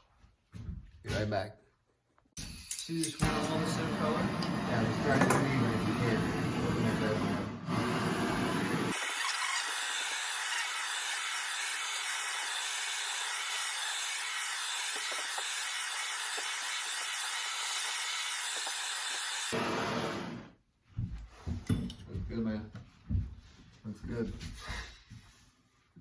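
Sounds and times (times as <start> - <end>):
torch flame hissing: 3.2 - 20.6.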